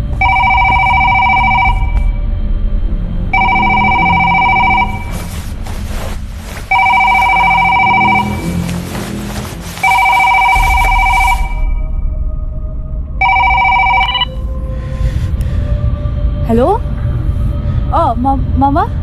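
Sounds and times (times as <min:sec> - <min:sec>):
low drone: 0:00.0 - 0:19.0
telephone ringing: 0:00.2 - 0:02.1, 0:03.4 - 0:05.2, 0:06.7 - 0:08.6, 0:09.8 - 0:11.7, 0:13.2 - 0:14.4.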